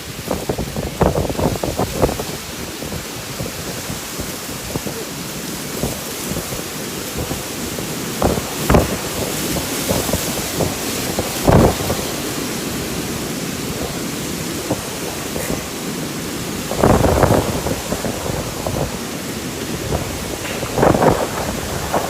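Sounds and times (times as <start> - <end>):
rain: 0.0 - 22.0
storm wind blowing: 0.0 - 22.0.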